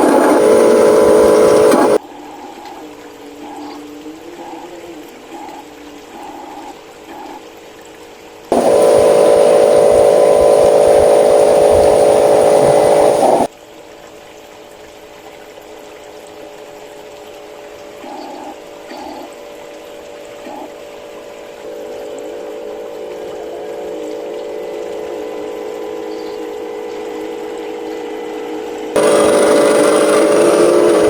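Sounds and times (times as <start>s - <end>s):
motor whine under load: 0.0s - 2.0s, 8.5s - 13.5s, 21.6s - 31.0s
small electric motor running: 0.0s - 2.0s, 8.5s - 13.5s, 21.7s - 31.0s.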